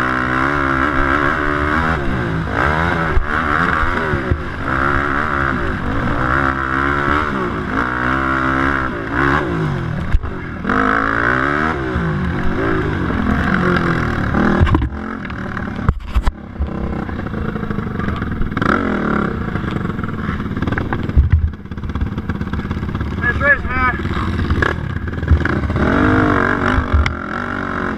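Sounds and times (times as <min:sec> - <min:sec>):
quad engine revving: 0:00.0 - 0:27.9
engine knocks: 0:19.6 - 0:27.2.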